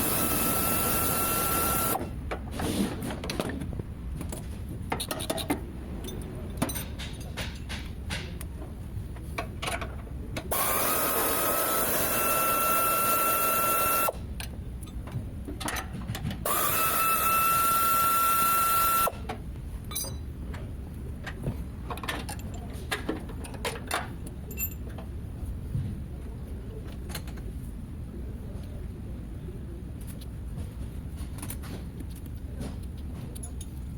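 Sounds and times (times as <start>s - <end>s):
power tool whining: 0.0s - 2.0s, 10.5s - 14.2s, 16.5s - 19.2s
tools and metal parts clinking: 3.2s - 8.4s, 19.8s - 25.1s, 33.3s - 33.9s.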